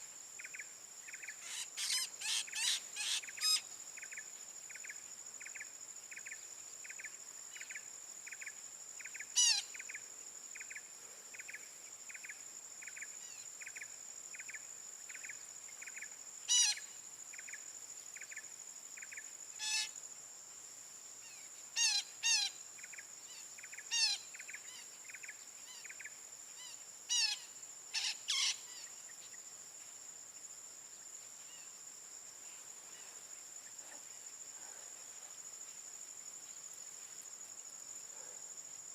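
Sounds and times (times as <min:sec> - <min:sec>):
high insect drone: 0:00.0 - 0:38.9
harsh parakeet calls: 0:01.4 - 0:03.6, 0:21.8 - 0:22.5, 0:28.0 - 0:28.6.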